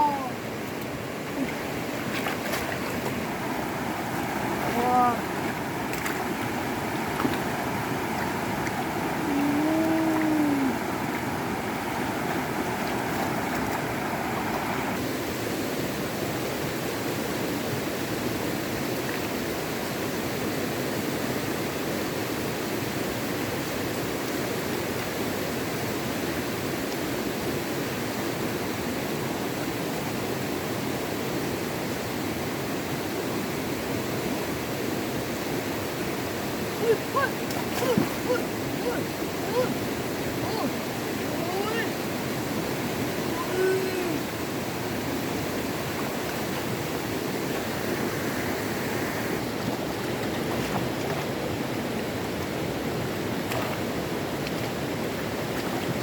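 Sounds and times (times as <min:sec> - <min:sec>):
flowing water rushing: 0:00.0 - 0:56.0.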